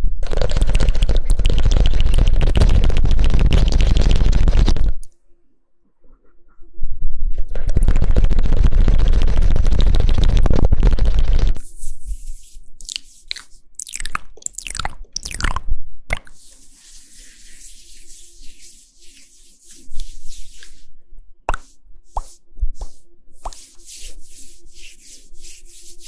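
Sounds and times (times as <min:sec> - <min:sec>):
dense crackle: 0:00.2 - 0:05.0, 0:07.5 - 0:11.6.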